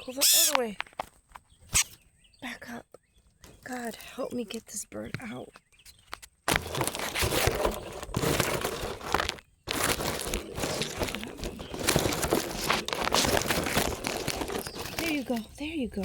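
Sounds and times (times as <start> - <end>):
rustling and crackling: 3.5 - 16.0.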